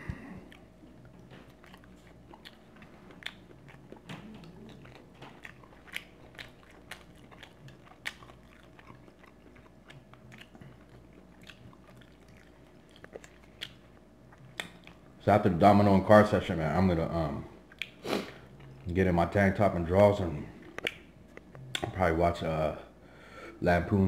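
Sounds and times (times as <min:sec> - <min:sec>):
person chewing food: 0:00.0 - 0:15.2, 0:17.6 - 0:19.0, 0:20.4 - 0:22.0.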